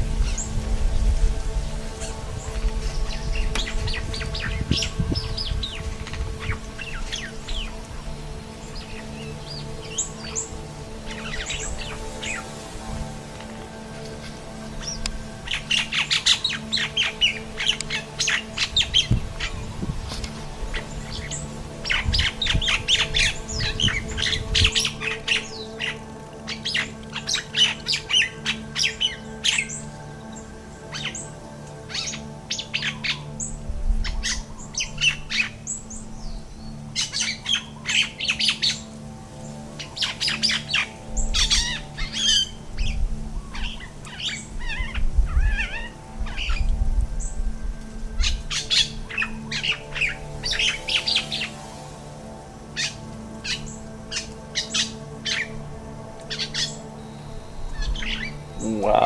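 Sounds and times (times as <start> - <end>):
wind gusts on microphone: 0.0 - 26.4, 41.0 - 52.7
mynah birds squawking and chirping: 0.0 - 47.4, 48.2 - 59.0.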